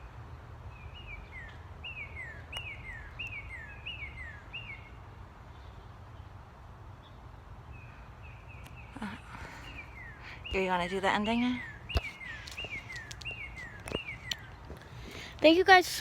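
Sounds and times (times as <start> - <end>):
small bird chirping: 0.8 - 5.0, 7.8 - 15.4.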